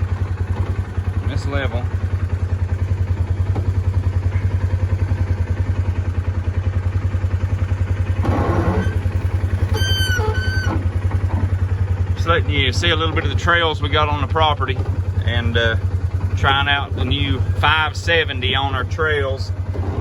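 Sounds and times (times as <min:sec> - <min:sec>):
single-cylinder engine pulsing: 0:00.0 - 0:20.0
brief high squeaks: 0:08.3 - 0:10.9.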